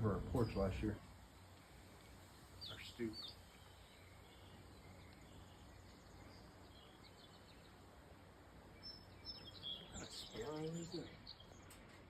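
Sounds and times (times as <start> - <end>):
faint background hum: 0.0 - 12.0.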